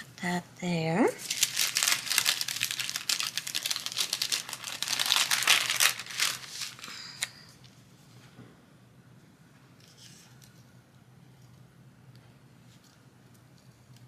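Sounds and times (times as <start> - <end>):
paper crinkling and rustling: 1.2 - 7.4.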